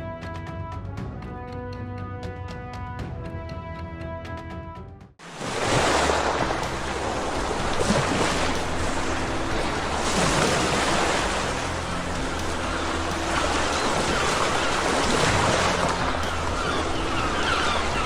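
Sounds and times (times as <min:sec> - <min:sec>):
loud rushing water: 0:05.2 - 0:18.0.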